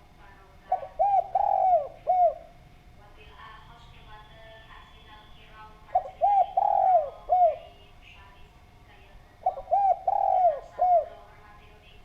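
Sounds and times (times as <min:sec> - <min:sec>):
dove cooing: 0:00.7 - 0:02.6, 0:05.9 - 0:07.8, 0:09.4 - 0:11.4.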